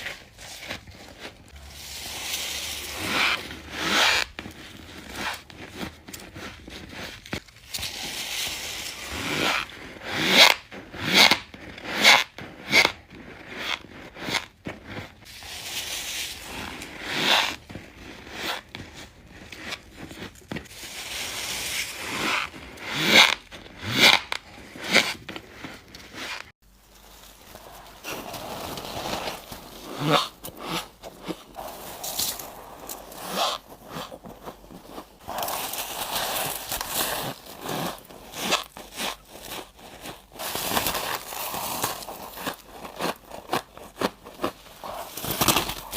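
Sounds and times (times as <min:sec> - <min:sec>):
crunchy bites into frost: 0:35.0 - 0:45.9.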